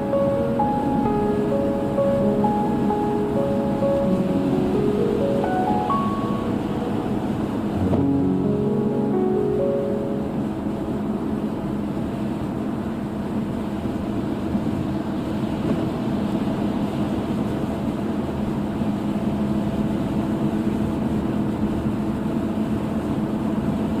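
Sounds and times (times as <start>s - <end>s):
car road and engine hum: 0.0s - 24.0s
rain hiss: 0.0s - 24.0s.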